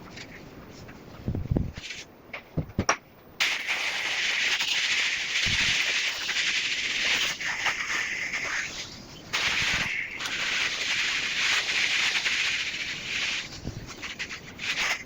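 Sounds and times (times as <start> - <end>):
hose water spraying on window: 3.4 - 15.0.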